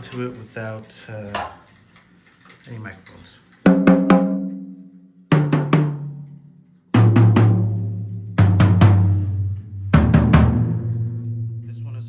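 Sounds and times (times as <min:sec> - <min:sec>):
tom-tom drum hits: 0:03.7 - 0:04.7, 0:05.3 - 0:06.2, 0:07.0 - 0:12.0.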